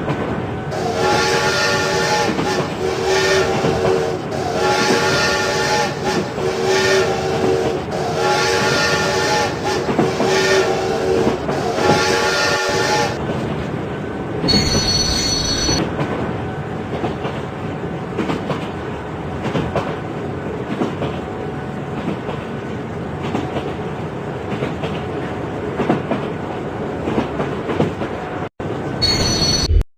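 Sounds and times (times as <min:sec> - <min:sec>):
train rumbling on track: 0:00.0 - 0:29.8
high-pitched wheel squeal: 0:29.0 - 0:29.8.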